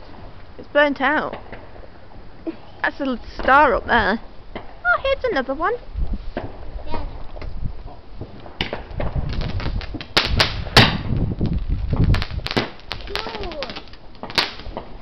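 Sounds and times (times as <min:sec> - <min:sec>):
firework cracks and pops: 0:07.9 - 0:15.0.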